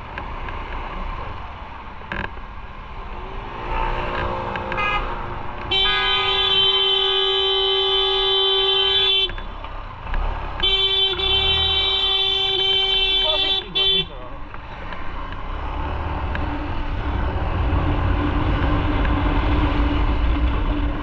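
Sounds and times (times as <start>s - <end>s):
traffic engine and road noise: 0.0s - 21.0s
vehicle horn blast: 4.7s - 9.5s, 10.6s - 14.2s.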